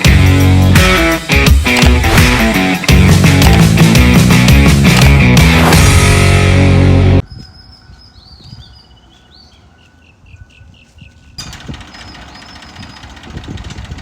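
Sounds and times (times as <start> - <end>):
birds chirping: 7.0 - 13.6
engine running with uneven pulse: 11.4 - 14.0.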